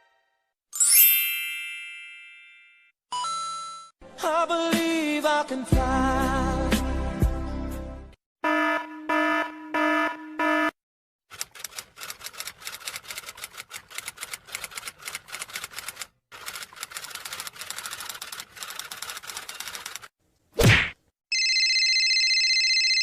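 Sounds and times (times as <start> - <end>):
rapid clacking keystrokes: 11.3 - 20.1.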